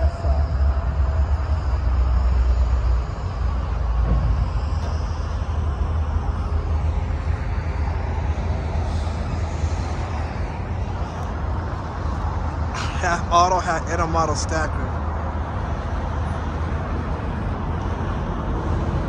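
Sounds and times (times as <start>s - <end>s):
freight train wheels on rails: 0.0s - 13.0s.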